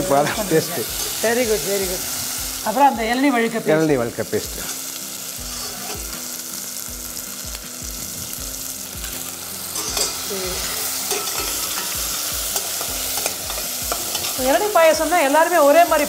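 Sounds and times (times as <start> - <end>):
paste sizzling in a saucepan: 0.0 - 16.0
ladle stirring and knocking pan: 9.7 - 14.5.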